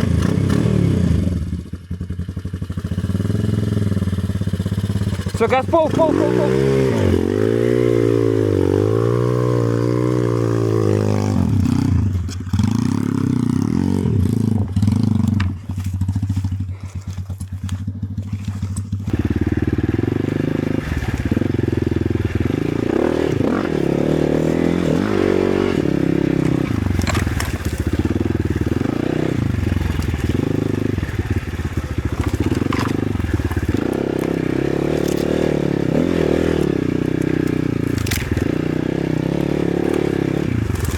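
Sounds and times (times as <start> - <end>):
motorcycle engine revving: 0.0 - 40.9
scraping and crackling: 14.7 - 40.9.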